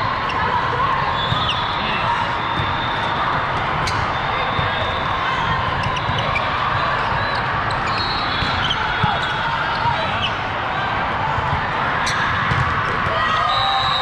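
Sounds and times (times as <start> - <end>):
crowd voices: 0.0 - 14.0
volleyball hit and bouncing: 11.4 - 13.2.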